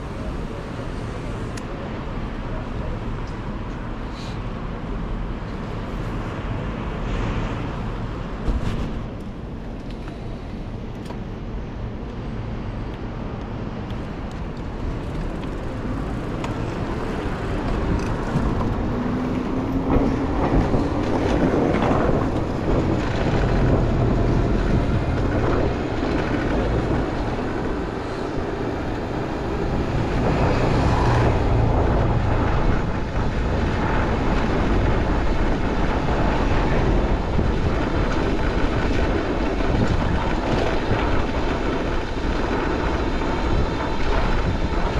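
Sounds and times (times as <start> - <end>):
city street traffic: 0.0 - 44.9
vehicle motor tone rising: 14.0 - 21.0.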